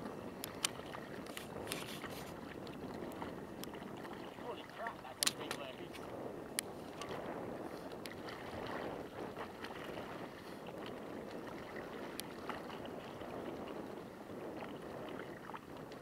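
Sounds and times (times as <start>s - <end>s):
lake water splashing: 0.0s - 16.0s
faint clicks: 5.1s - 7.1s.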